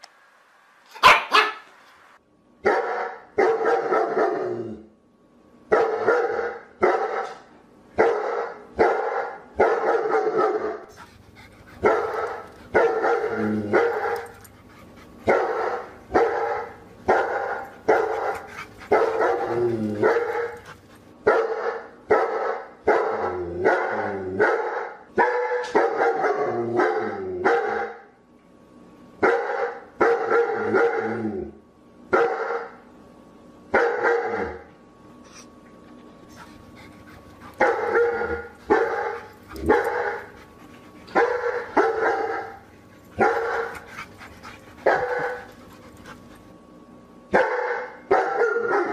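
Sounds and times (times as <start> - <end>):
dog barking: 0.9 - 1.7, 2.6 - 4.4, 5.7 - 7.4, 8.0 - 10.9, 11.8 - 14.3, 15.3 - 20.6, 21.2 - 28.1, 29.2 - 31.1, 32.1 - 32.8, 33.7 - 34.6, 37.6 - 40.3, 41.1 - 42.6, 43.2 - 43.8, 44.8 - 45.6, 47.3 - 48.9.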